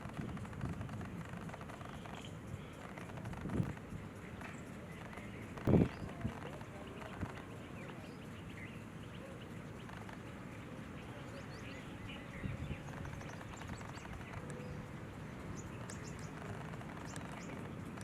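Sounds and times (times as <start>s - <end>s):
outdoor background hum: 0.0s - 18.0s
faint bird chirps: 0.1s - 18.0s.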